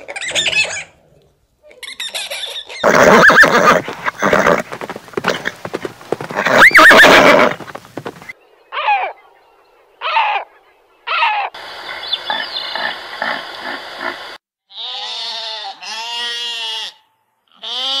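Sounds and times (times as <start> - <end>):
horse neighing: 2.7 - 8.2
sheep bleating: 14.7 - 18.0.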